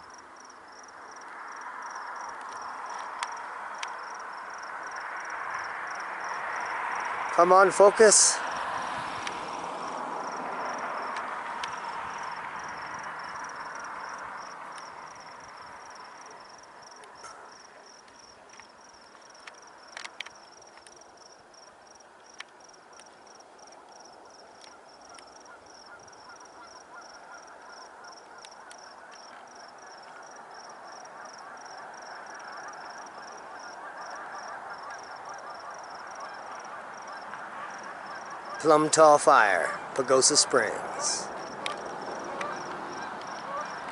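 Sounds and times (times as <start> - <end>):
crickets chirping: 0.0 - 43.9
faint clicks: 24.6 - 25.3.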